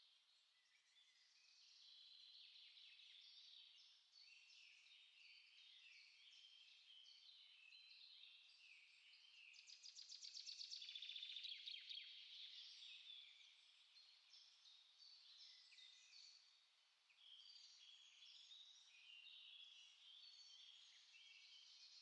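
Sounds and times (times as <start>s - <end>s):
small songbirds chirping: 0.0s - 22.0s.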